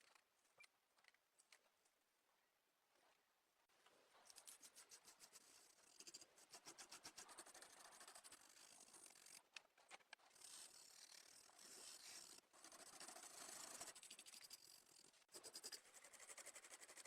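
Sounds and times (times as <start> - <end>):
scratchy rubbing strokes: 4.4 - 9.4, 10.3 - 17.0.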